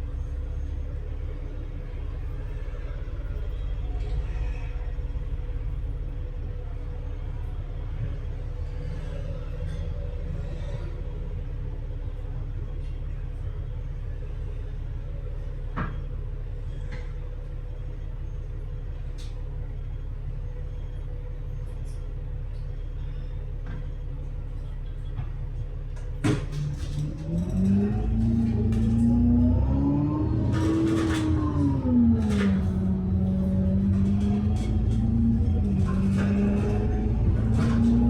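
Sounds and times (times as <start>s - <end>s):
bus engine idling: 0.0s - 38.0s.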